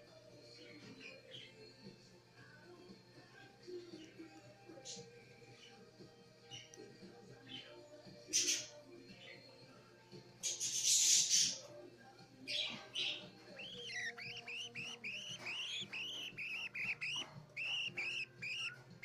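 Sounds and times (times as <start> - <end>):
budgerigar chick cheeping: 12.5 - 19.0
budgerigar chick raspy calls: 13.6 - 18.8.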